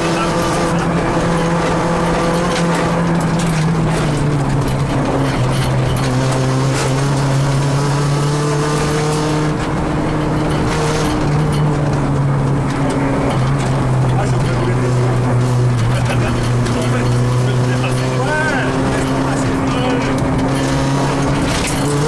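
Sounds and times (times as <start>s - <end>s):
car engine from inside cabin: 0.0s - 22.0s
tyres on gravel: 0.0s - 22.0s.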